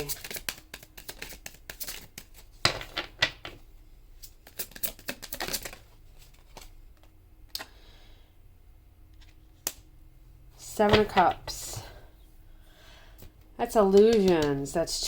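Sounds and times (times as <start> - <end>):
cards being shuffled: 0.0 - 3.5, 4.2 - 7.2, 13.6 - 14.7.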